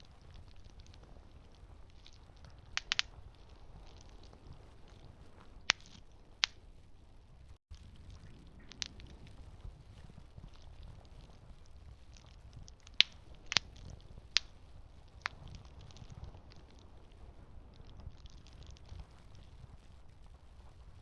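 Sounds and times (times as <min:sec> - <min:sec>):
campfire burning: 0:00.0 - 0:21.0
wood crackling and popping: 0:00.0 - 0:21.0.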